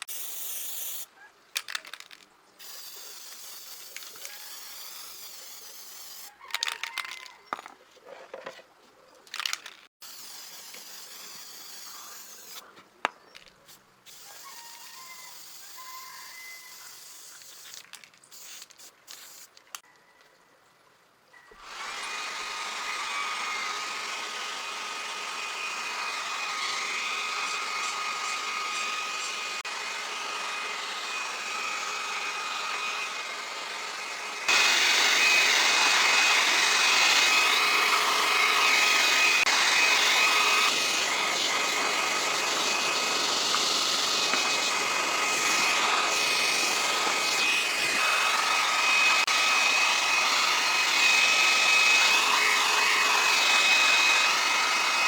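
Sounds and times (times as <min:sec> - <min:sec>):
small motor whining: 0:00.0 - 0:07.2, 0:09.4 - 0:12.6, 0:21.5 - 0:55.0.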